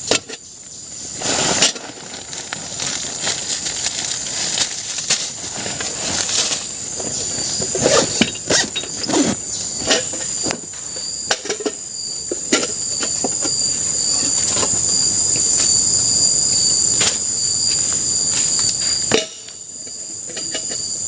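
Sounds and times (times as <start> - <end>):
high insect drone: 0.0 - 21.0
rustling of materials: 1.2 - 11.6.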